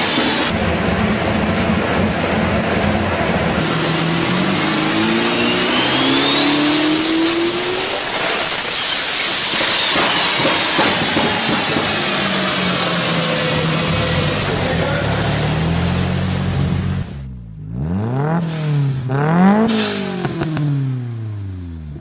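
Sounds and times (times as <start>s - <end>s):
car engine accelerating: 0.0s - 22.0s
turbo whistle: 5.3s - 11.1s.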